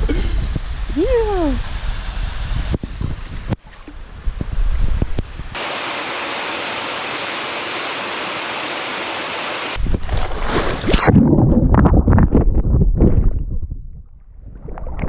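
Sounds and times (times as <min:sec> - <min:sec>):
waterfall rushing: 0:05.6 - 0:09.8.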